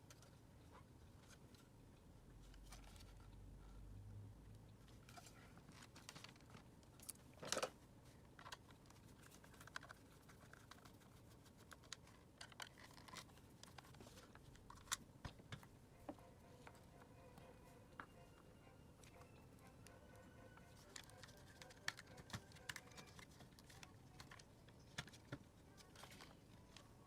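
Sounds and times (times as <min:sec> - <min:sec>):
plastic parts clicking and scraping: 0:05.0 - 0:15.6, 0:20.7 - 0:26.8.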